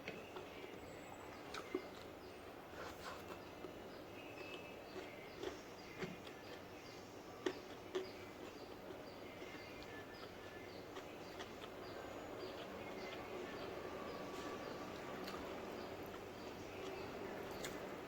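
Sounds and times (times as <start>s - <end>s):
chewing and mouth smacks: 0.1s - 2.1s, 4.4s - 6.7s, 7.4s - 13.6s.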